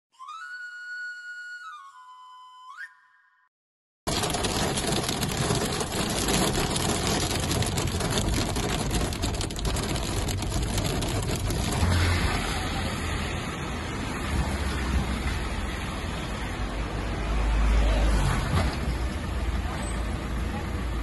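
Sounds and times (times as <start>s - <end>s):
heavy rain on car windshield: 4.1s - 13.4s
car engine and tyres: 4.1s - 21.0s
traffic on wet street: 4.1s - 21.0s.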